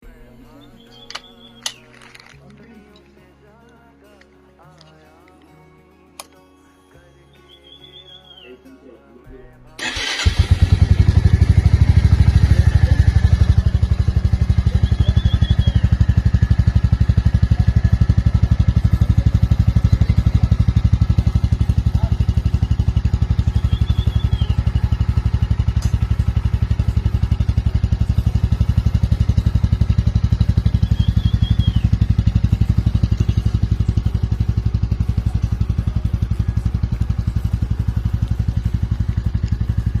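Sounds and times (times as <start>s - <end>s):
motorcycle engine idling: 9.8s - 40.0s.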